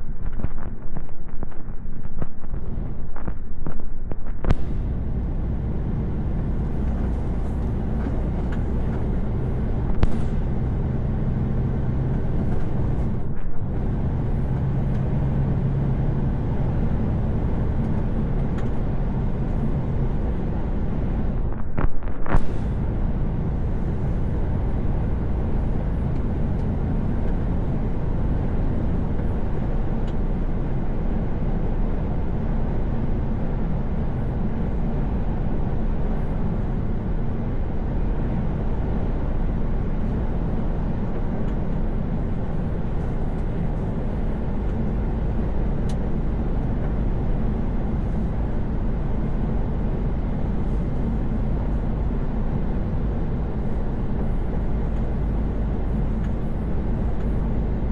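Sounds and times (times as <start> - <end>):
truck engine and tyre rumble: 0.0 - 57.9.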